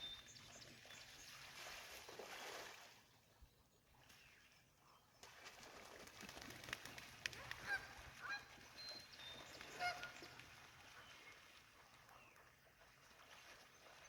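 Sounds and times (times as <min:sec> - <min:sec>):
geese honking: 0:09.8 - 0:10.2.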